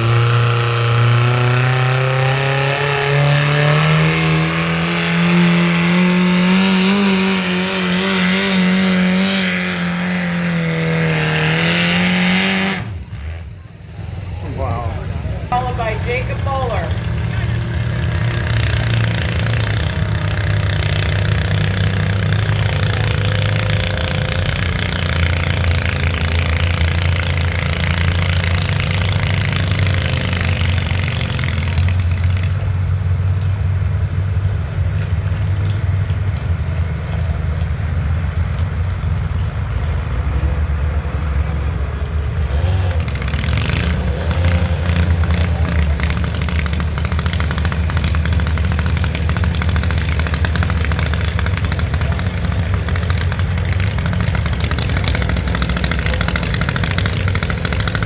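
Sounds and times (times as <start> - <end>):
garden tractor engine running: 14.0 - 58.0.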